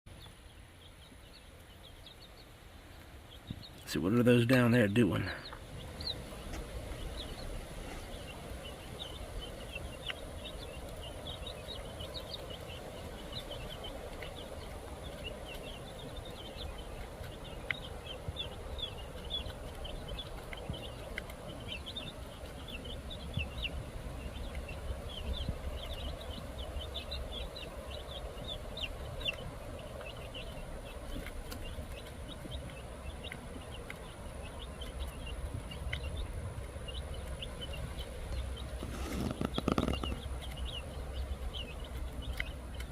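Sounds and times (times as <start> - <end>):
birds chirping: 0.1 - 42.9
low background rumble: 0.1 - 42.9.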